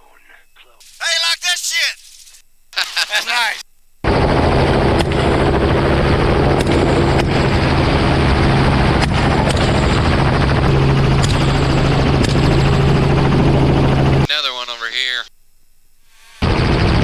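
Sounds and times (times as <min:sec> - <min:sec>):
helicopter rotor and engine drone: 0:04.0 - 0:14.3, 0:16.4 - 0:17.0.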